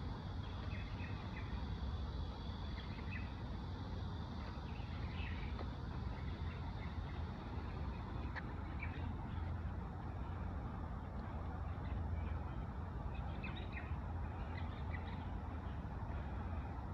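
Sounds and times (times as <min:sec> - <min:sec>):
birds chirping: 0:00.3 - 0:16.8.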